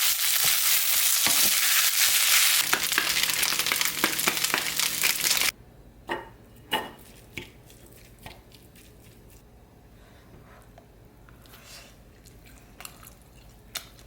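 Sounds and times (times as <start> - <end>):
food sizzling in a frying pan: 0.0 - 5.5.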